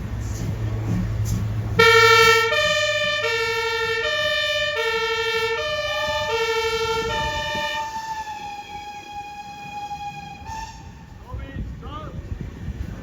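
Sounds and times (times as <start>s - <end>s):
engine hum: 0.0s - 13.0s
two-tone siren: 1.8s - 11.2s.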